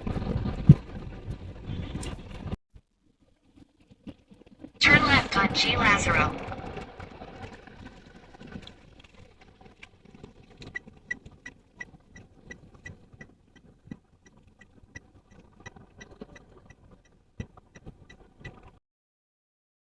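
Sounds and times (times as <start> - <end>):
cabin road and engine noise: 4.8 - 9.8
turn-signal indicator ticking: 10.6 - 18.7.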